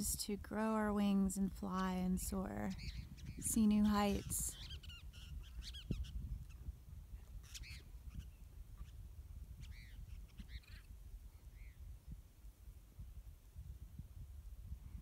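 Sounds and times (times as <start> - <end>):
low steady rumble: 0.0 - 4.8
birds calling: 2.7 - 9.0, 9.6 - 10.9.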